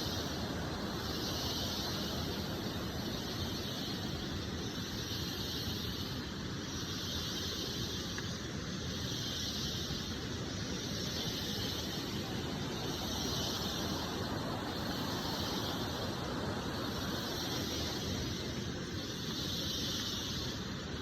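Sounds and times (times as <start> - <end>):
cicadas droning: 0.0 - 21.0.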